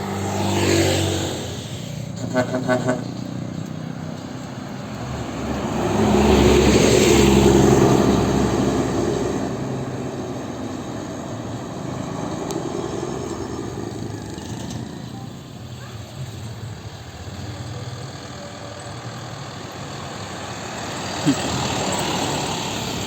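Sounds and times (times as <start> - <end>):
heavy vehicle passing: 0.0 - 23.0
quick horn toots: 2.2 - 3.2.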